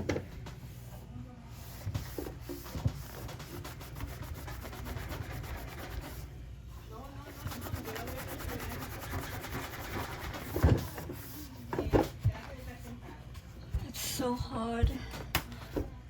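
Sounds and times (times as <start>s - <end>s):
cloth scrubbing a surface: 1.5s - 6.3s, 7.2s - 11.6s.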